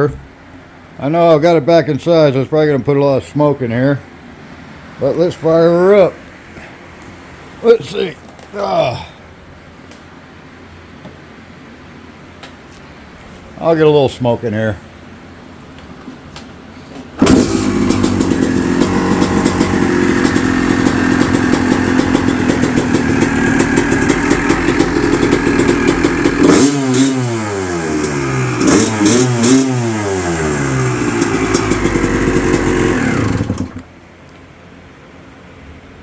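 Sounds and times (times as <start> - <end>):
motorcycle engine revving: 17.2 - 33.9.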